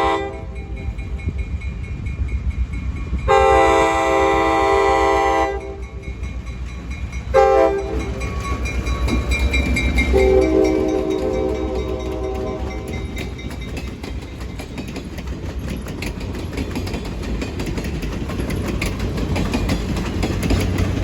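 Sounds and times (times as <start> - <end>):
locomotive air horn blasts: 0.0 - 0.8, 3.3 - 5.8, 7.3 - 8.2, 10.1 - 13.3
locomotive engine rumbling: 0.0 - 21.0.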